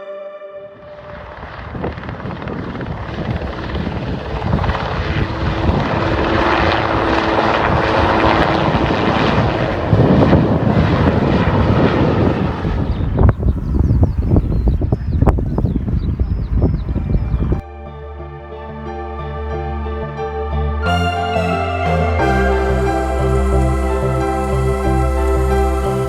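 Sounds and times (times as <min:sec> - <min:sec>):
helicopter rotor and turbine: 0:00.7 - 0:14.7.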